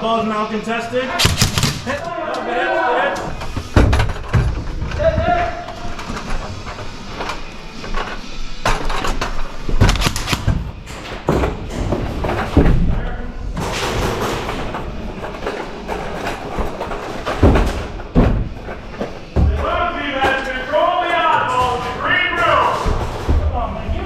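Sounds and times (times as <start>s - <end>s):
faint music: 0.0s - 24.0s
thuds and sharp knocks: 1.2s - 2.0s.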